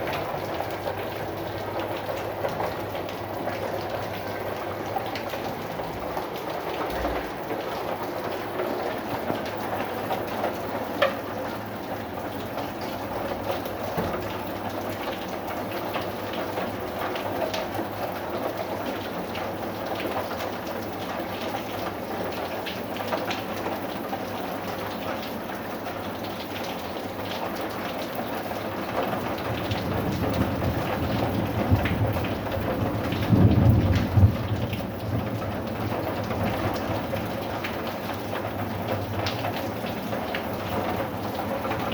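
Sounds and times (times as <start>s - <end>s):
rain drop impacts: 0.0s - 18.7s, 28.8s - 41.9s
steady rain falling: 0.0s - 41.9s.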